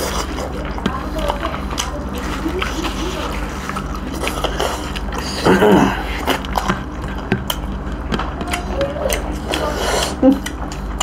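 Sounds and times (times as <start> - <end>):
chewing and lip-smacking: 0.0 - 11.0
person humming: 8.4 - 10.5.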